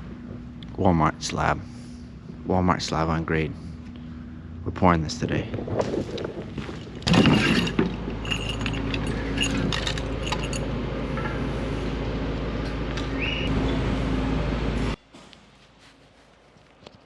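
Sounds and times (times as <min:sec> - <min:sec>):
engine running steadily: 0:00.0 - 0:16.8
light metallic clinks and jangles: 0:07.1 - 0:10.7.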